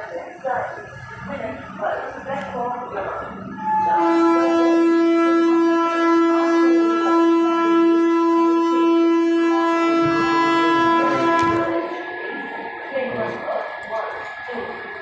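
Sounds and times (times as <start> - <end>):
train horn blast: 3.6 - 12.1.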